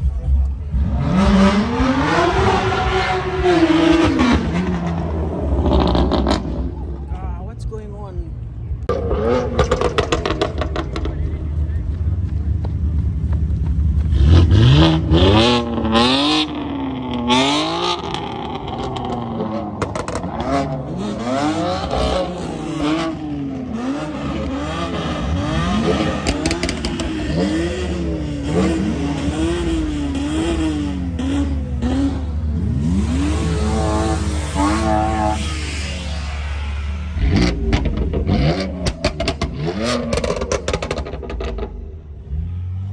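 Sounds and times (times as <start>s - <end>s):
car engine revving hard: 0.7s - 6.8s, 14.1s - 41.7s.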